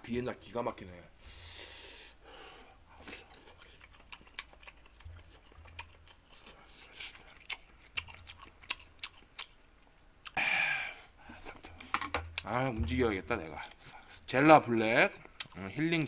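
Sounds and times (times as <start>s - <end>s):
person chewing and smacking food: 2.8s - 10.4s, 11.3s - 14.3s, 15.0s - 15.7s.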